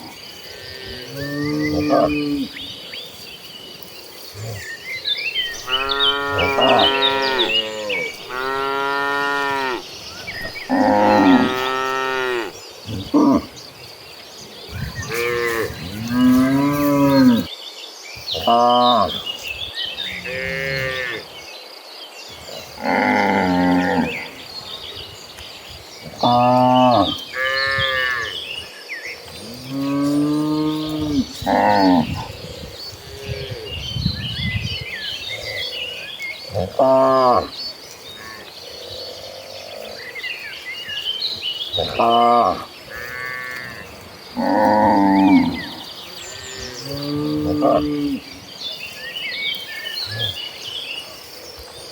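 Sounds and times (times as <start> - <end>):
small birds chirping: 0.0 - 51.9
cattle mooing: 5.6 - 9.8, 10.4 - 13.5.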